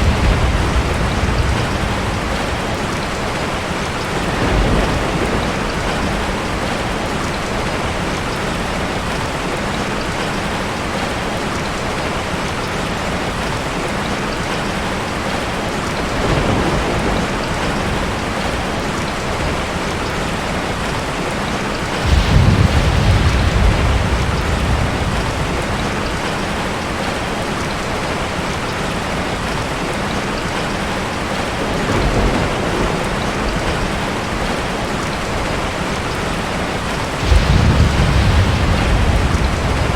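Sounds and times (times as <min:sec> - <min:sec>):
thunder rumbling: 0:00.0 - 0:09.2, 0:15.9 - 0:21.2, 0:21.8 - 0:29.7, 0:31.3 - 0:39.9
heavy rain: 0:00.0 - 0:39.9.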